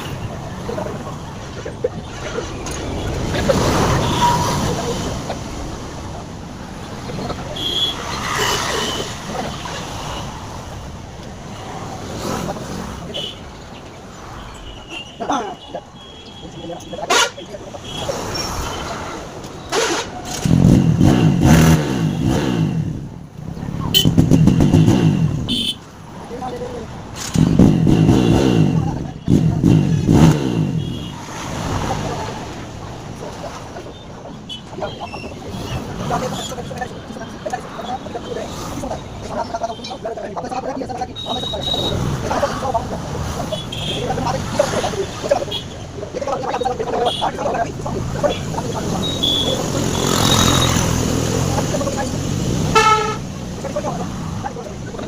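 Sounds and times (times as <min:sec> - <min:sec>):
vehicle engine rumbling: 0:00.0 - 0:55.0
motorcycle exhaust revving: 0:24.0 - 0:25.7, 0:27.3 - 0:31.0.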